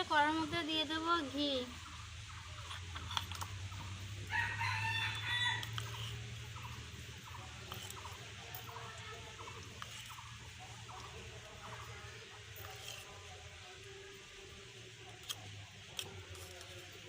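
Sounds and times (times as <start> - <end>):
chickens clucking: 1.7 - 4.2, 5.2 - 13.6
rooster crowing: 4.3 - 6.1.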